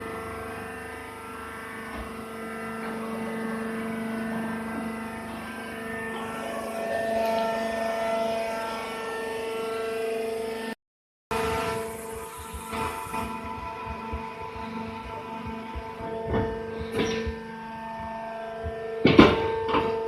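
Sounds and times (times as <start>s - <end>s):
machine droning: 0.0s - 20.0s.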